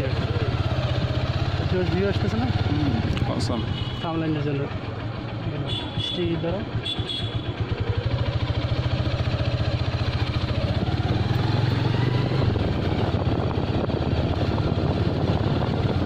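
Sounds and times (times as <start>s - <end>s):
engine chugging: 0.0s - 16.0s.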